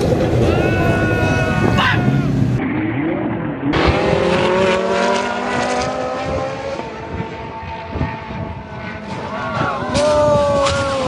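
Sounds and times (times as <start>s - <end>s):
car engine revving: 0.0s - 10.1s
sports car engine accelerating: 2.1s - 10.0s.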